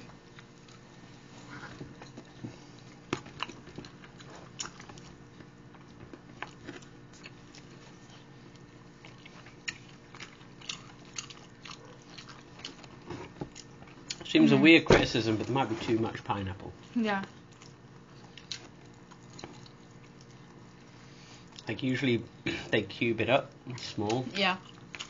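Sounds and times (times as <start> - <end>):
faint steady hum: 0.0 - 25.0
people biting and chewing: 0.1 - 14.3, 17.3 - 21.7, 23.7 - 25.0.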